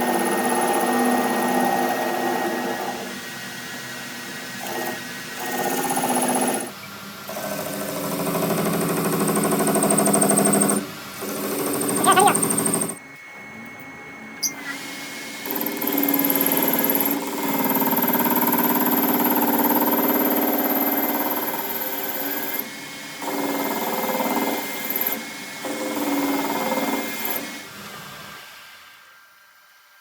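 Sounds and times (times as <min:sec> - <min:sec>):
electric power tool motor running: 0:00.0 - 0:13.0.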